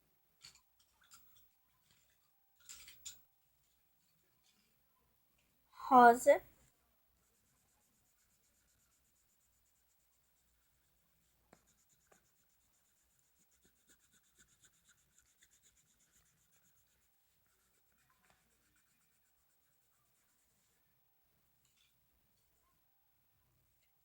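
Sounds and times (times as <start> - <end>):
felt-tip marker scratching on paper: 7.2 - 20.8.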